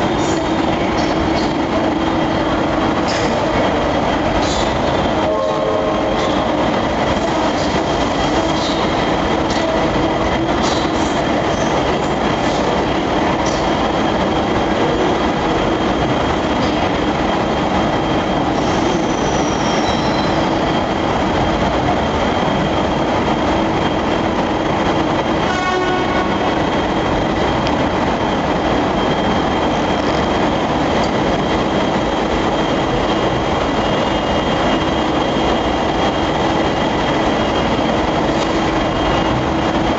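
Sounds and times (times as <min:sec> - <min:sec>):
loud mechanical hum: 0:00.0 - 0:39.9
brief high squeal: 0:18.6 - 0:20.6.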